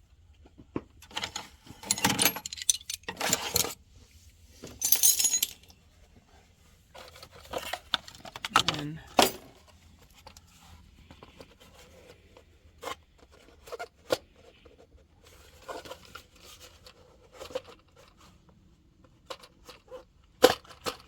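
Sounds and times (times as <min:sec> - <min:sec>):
hand tools clicking and knocking: 0:01.2 - 0:03.8, 0:04.7 - 0:05.7.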